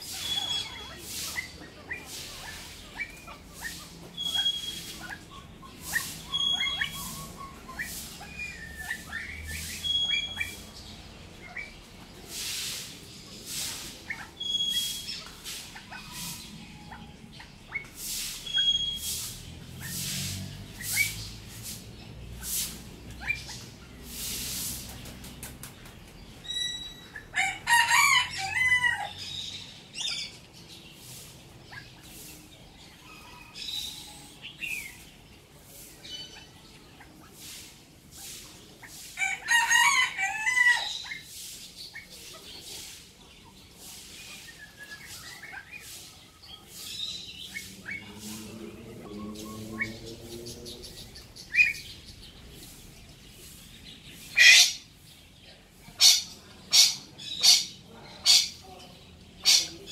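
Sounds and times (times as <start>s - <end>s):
loud harsh bird call: 0.0s - 2.1s, 3.0s - 10.8s, 14.2s - 16.7s, 17.8s - 21.2s
birds chirping: 0.0s - 59.9s.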